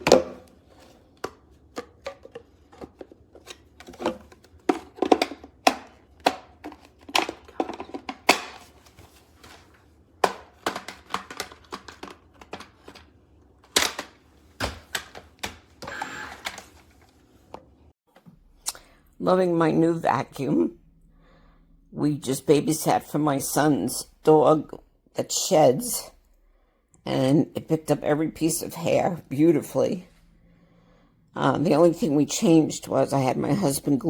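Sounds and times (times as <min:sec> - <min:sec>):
clicks and knocks of hard objects: 0:01.1 - 0:08.8, 0:10.2 - 0:15.8.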